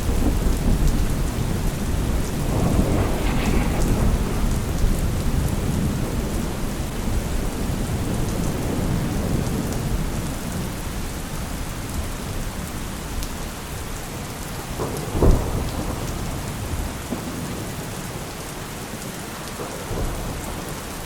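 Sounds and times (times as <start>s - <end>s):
low thunder rumble: 0.0s - 10.7s
heavy rain: 0.0s - 21.0s.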